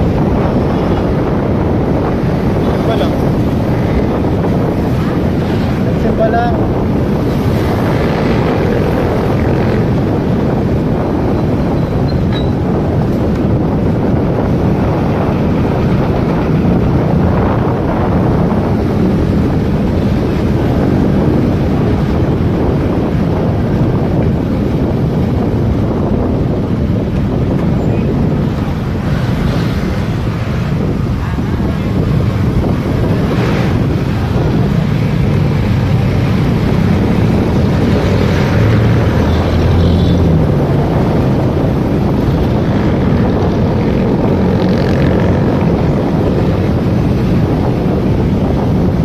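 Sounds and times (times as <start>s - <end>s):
road noise: 0.0s - 49.0s
wind rushing over microphone: 0.0s - 49.0s.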